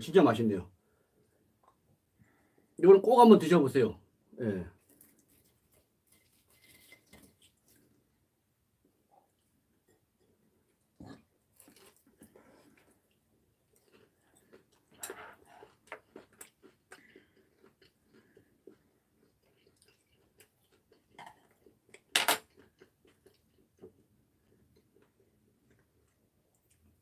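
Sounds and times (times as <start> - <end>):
people crunching fried squid: 4.8 - 8.0, 11.1 - 27.0.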